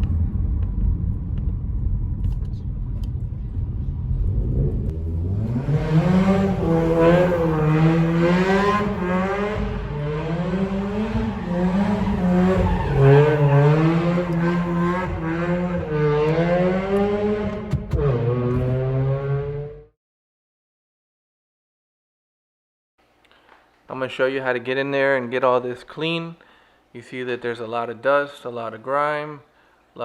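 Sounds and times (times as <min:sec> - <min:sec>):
rotary engine revving: 0:04.0 - 0:19.9
tires squealing: 0:04.7 - 0:19.4.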